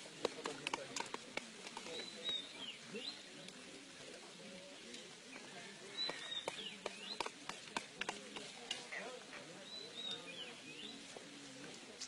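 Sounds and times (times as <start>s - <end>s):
sharp clicks and cracks: 0.2s - 2.0s
bird chirping call: 5.9s - 7.6s.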